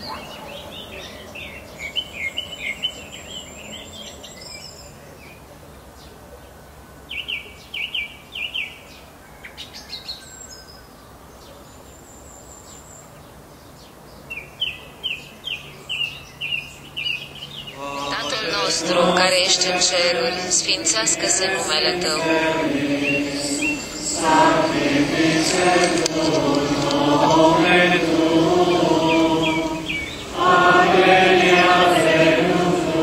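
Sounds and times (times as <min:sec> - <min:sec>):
songbird singing rapid notes: 0:28.7 - 0:30.4.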